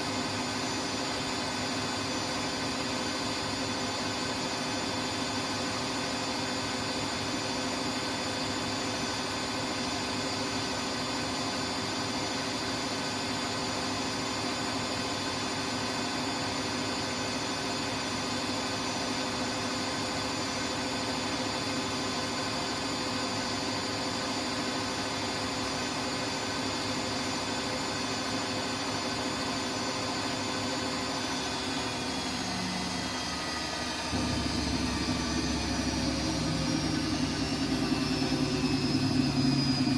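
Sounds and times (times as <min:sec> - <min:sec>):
washing machine spinning: 0:00.2 - 0:39.9
low rumble: 0:34.2 - 0:39.9.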